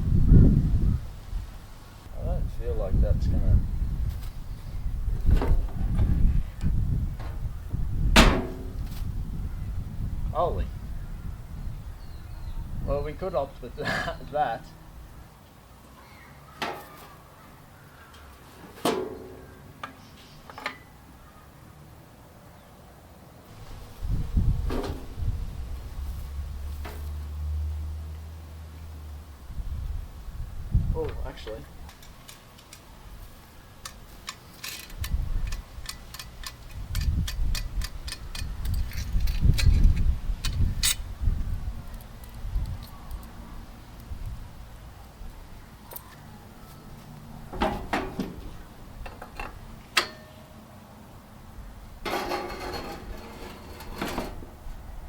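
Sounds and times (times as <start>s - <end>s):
heavy low rumbling bumps: 0.0s - 1.6s, 2.2s - 12.9s, 23.5s - 28.0s
metal parts clanking: 33.8s - 41.0s, 52.0s - 54.4s.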